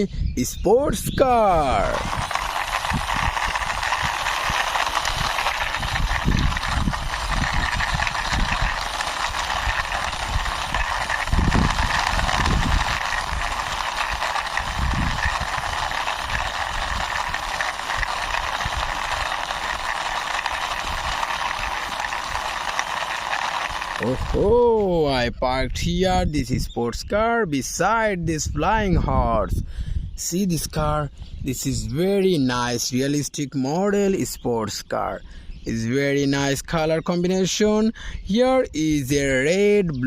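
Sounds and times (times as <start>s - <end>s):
toy car wheels rolling on ground: 0.0s - 29.6s, 30.2s - 40.0s.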